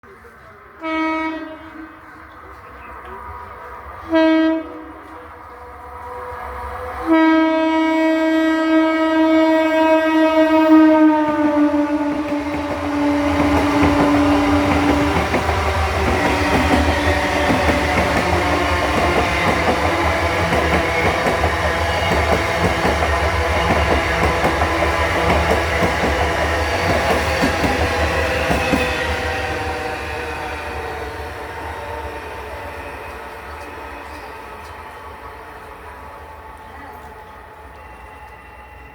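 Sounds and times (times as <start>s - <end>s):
train horn blast: 0.8s - 2.1s, 4.0s - 5.6s, 7.0s - 20.3s
train wheels clacking on rails: 11.2s - 35.9s.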